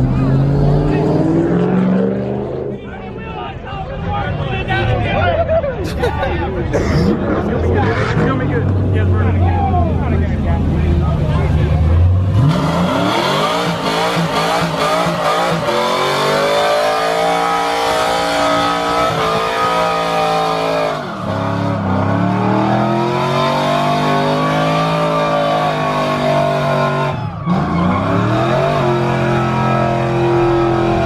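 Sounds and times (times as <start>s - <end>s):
car engine revving hard: 0.0s - 2.8s, 11.8s - 31.0s
tire noise: 0.0s - 31.0s.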